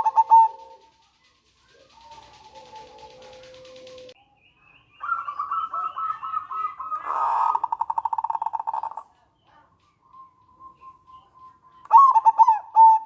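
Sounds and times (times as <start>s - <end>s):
dove cooing: 0.0s - 4.2s, 5.0s - 9.0s, 11.8s - 13.0s
dove rattling call: 0.0s - 4.2s, 5.0s - 9.1s.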